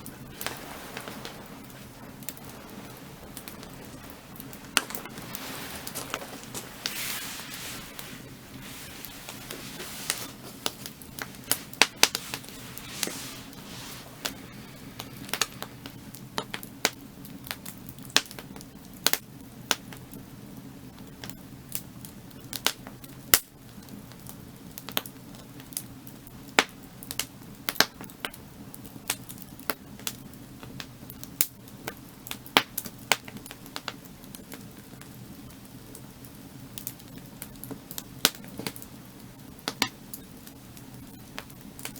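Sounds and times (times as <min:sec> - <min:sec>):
low fire rush: 0:00.0 - 0:17.2
firewood crackling and popping: 0:00.0 - 0:41.9.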